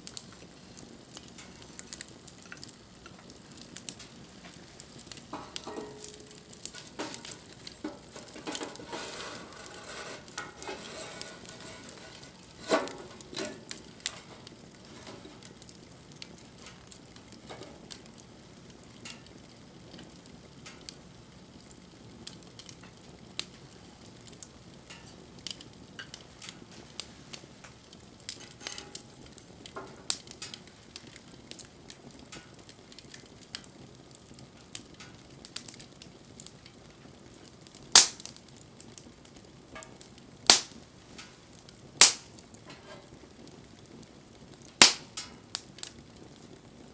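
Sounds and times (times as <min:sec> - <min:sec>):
soft hiss: 0:00.0 - 0:33.0
wood fire crackling: 0:00.0 - 0:46.9.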